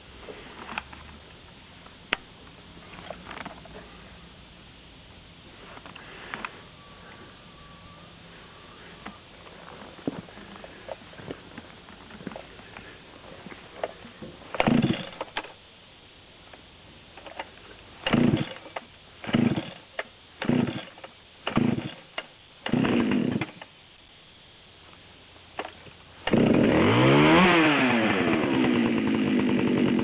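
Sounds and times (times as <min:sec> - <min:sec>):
chainsaw starter pulls: 0:13.8 - 0:15.5, 0:17.2 - 0:23.7, 0:25.6 - 0:30.0.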